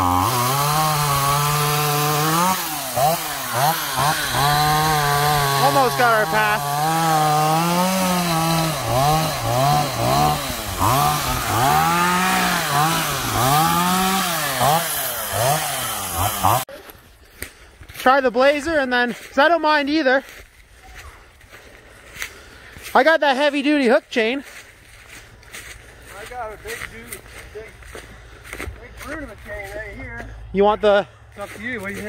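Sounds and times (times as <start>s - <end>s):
chainsaw cutting wood: 0.0s - 16.7s.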